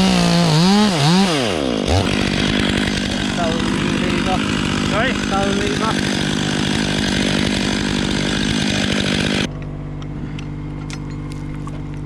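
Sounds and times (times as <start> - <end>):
chainsaw running at high revs: 0.0 - 9.5
steady engine idling: 1.9 - 10.3.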